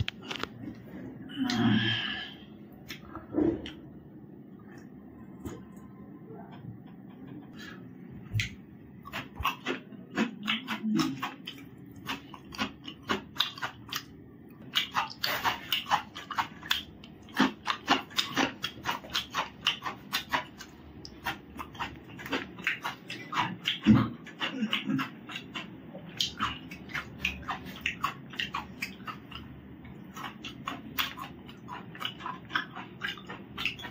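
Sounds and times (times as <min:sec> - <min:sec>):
crunching cucumber: 0:08.3 - 0:33.9.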